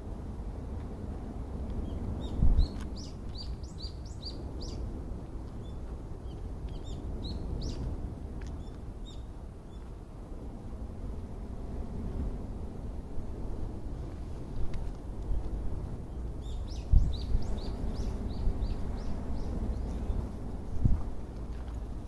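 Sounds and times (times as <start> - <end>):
songbirds chirping: 1.8 - 7.9, 15.2 - 22.0.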